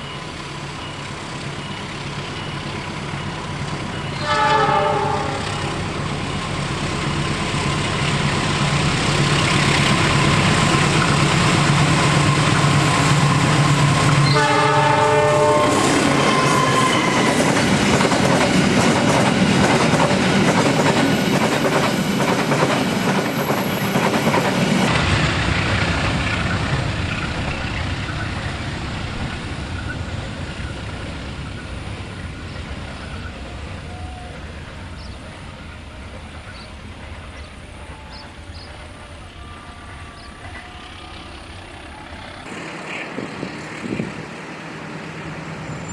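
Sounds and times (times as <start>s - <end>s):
train horn blast: 4.1s - 6.0s, 14.1s - 17.5s
locomotive engine drone: 4.9s - 45.9s.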